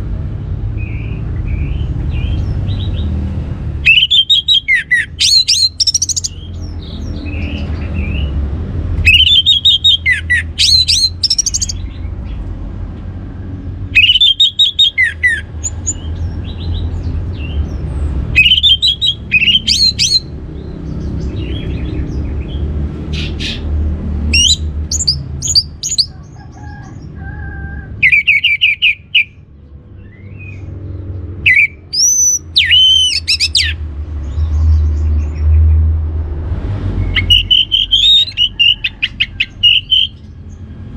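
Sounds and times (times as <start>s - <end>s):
bird singing whistled phrases: 3.8s - 6.5s, 9.0s - 11.8s, 14.0s - 16.8s, 18.4s - 20.3s, 24.3s - 26.1s, 28.0s - 29.4s, 31.4s - 33.8s, 37.1s - 40.2s.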